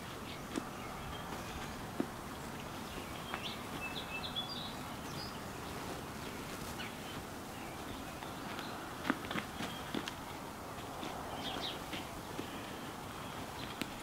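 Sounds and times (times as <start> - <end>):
outdoor background noise: 0.0 - 14.0
high bird chirps: 0.2 - 8.8.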